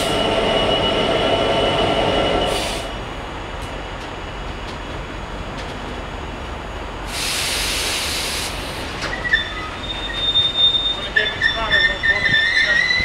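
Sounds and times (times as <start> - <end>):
train wagons rumbling: 0.0 - 13.0
air hiss burst: 2.5 - 2.9, 7.1 - 9.0
wheel squeal: 9.0 - 13.0.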